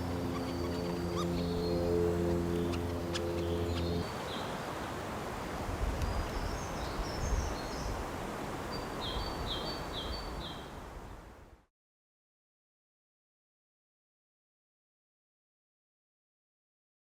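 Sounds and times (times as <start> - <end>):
small birds calling: 0.0 - 4.6
wind rumble on microphone: 5.3 - 11.6.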